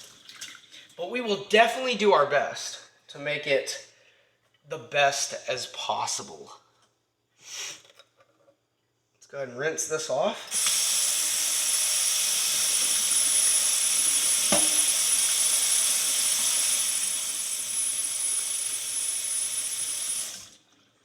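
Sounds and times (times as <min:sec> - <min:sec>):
tap water running over metal: 0:10.6 - 0:20.4.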